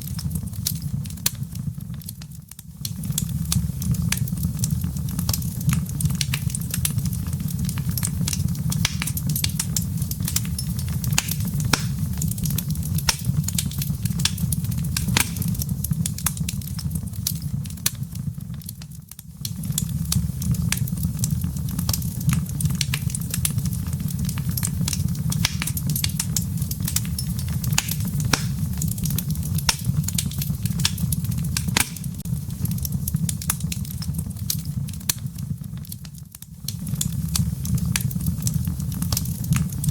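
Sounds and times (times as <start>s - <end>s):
wood fire crackling and popping: 0.0s - 39.9s
low rumble: 2.9s - 17.7s, 19.7s - 35.6s.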